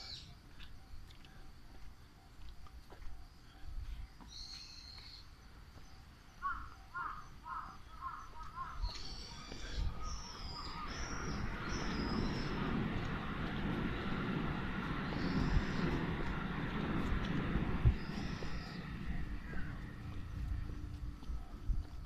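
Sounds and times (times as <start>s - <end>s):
birds calling: 4.2s - 13.3s
low rushing noise: 8.4s - 22.0s.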